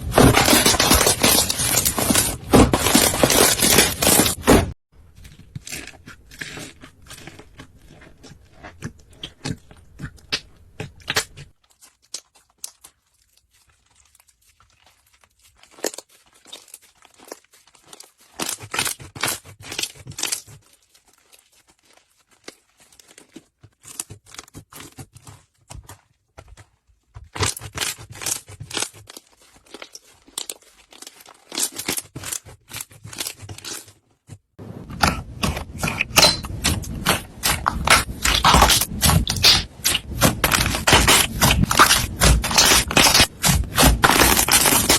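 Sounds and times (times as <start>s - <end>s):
slime crackling and popping: 34.7s - 44.9s.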